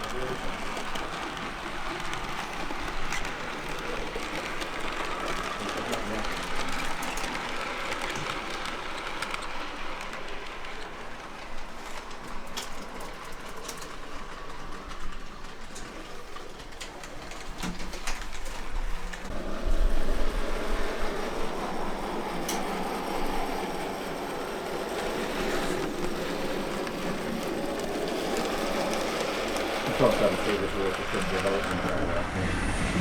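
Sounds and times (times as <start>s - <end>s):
model train wheels clicking: 0.0s - 32.7s
hall background noise: 19.2s - 33.0s.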